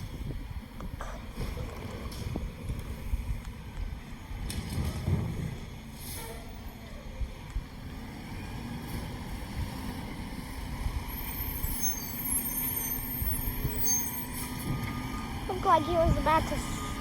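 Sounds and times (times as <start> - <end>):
diesel truck engine rumbling: 0.0 - 17.0
faint high squeals: 11.1 - 14.5.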